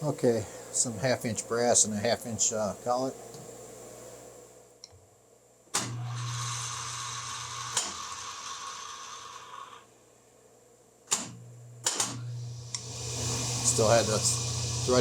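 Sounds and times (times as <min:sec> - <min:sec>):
lathe motor and gear hum: 0:12.8 - 0:15.0.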